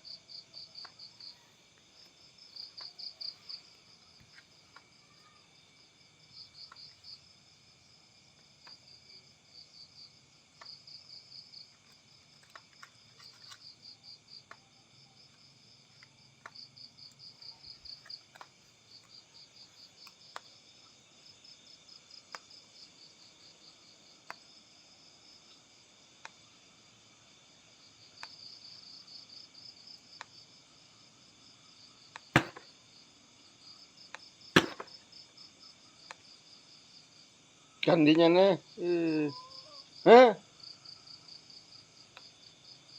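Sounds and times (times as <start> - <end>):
insects chirping in trills: 0.0 - 42.9
faint ticks: 10.5 - 10.8, 22.2 - 22.6, 24.2 - 24.5, 42.1 - 42.4
sharp knock: 32.4 - 32.6, 34.6 - 34.9.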